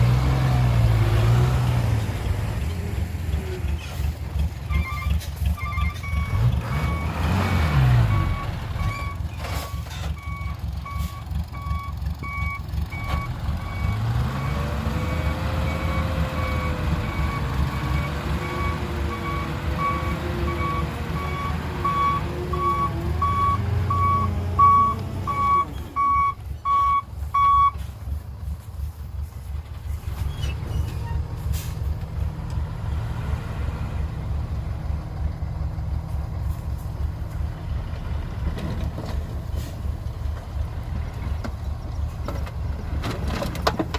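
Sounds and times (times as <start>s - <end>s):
truck engine revving: 0.0s - 27.0s, 29.6s - 43.9s
truck reversing alarm beeps: 4.6s - 27.8s.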